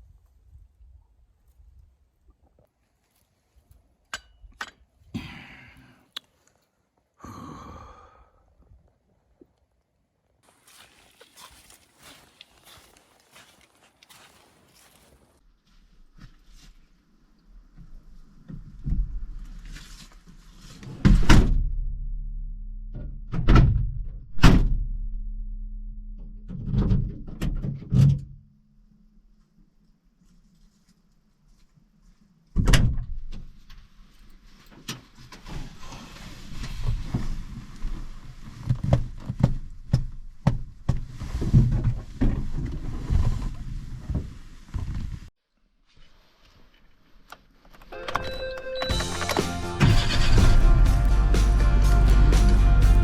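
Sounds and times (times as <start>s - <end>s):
breathy exhalations: 5.1s - 6.4s, 7.2s - 8.7s
low hum: 21.3s - 27.1s, 49.0s - 53.0s.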